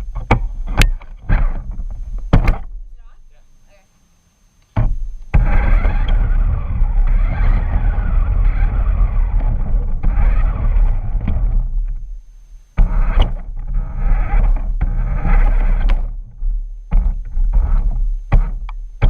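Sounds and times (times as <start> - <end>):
heavy low rumble: 4.8 - 18.3
remote-control truck motor: 5.4 - 11.2.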